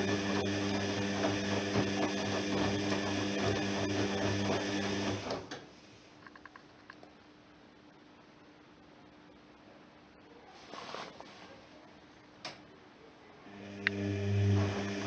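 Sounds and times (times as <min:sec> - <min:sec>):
washing machine drum motor humming: 0:00.0 - 0:05.6, 0:13.5 - 0:15.0.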